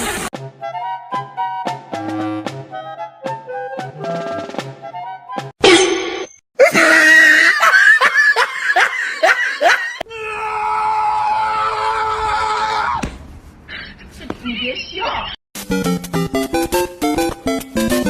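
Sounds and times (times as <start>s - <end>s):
loud cries: 6.6s - 13.0s.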